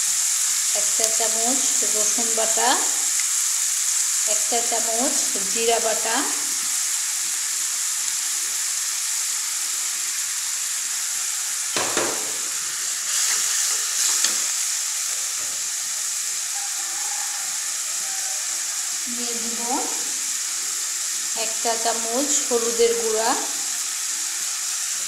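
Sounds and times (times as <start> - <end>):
onions sizzling and bubbling in oil: 0.0 - 25.0
metal spatula scraping a pan: 13.1 - 14.6.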